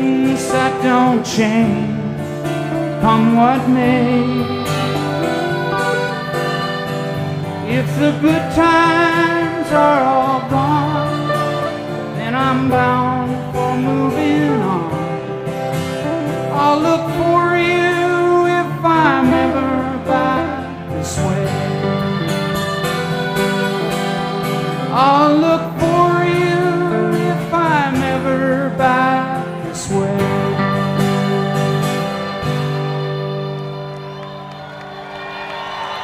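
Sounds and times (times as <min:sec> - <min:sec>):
bass: 0:00.0 - 0:34.0
strummed acoustic guitar: 0:00.0 - 0:34.7
lead instrument sliding melody: 0:02.7 - 0:16.6, 0:19.4 - 0:27.0.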